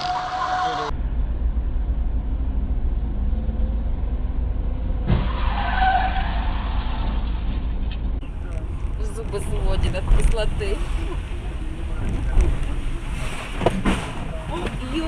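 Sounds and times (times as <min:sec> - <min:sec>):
car engine and road rumble: 0:00.0 - 0:15.0
short thump: 0:13.4 - 0:14.8.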